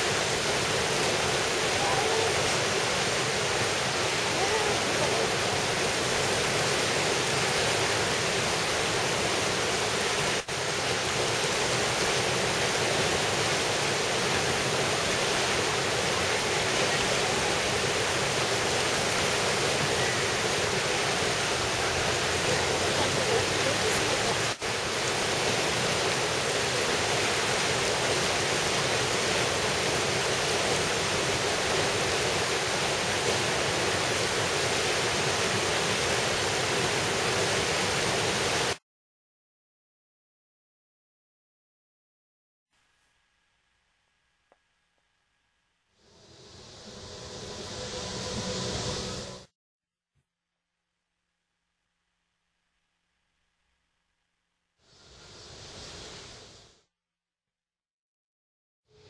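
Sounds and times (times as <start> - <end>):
fast-flowing stream water rushing: 0.0 - 38.8.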